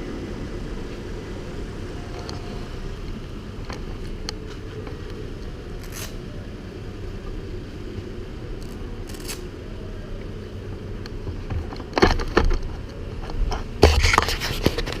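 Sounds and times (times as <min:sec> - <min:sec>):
steady low rumble: 0:00.0 - 0:15.0
clattering knocks and scrapes: 0:11.3 - 0:15.0.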